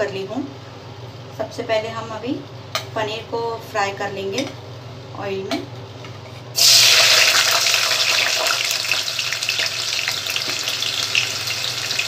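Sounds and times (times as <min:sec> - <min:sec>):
food sizzling in hot oil: 0:06.6 - 0:12.0.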